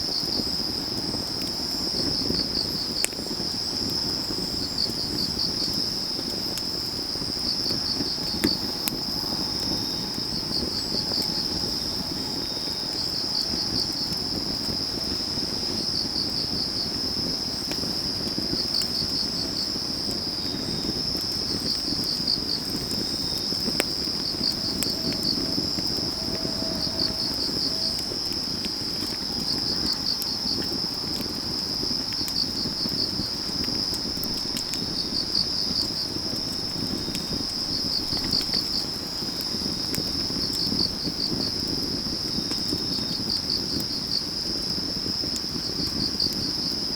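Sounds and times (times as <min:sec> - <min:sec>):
insects trilling: 0:00.0 - 0:46.9
wood fire crackling and popping: 0:00.0 - 0:46.9
insect chirping in pulsed bursts: 0:06.8 - 0:17.0, 0:20.4 - 0:40.4.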